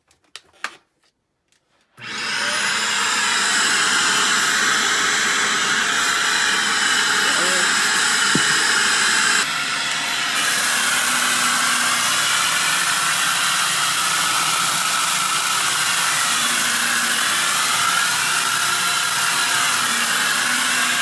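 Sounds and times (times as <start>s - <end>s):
vacuum cleaner running: 2.0s - 21.0s.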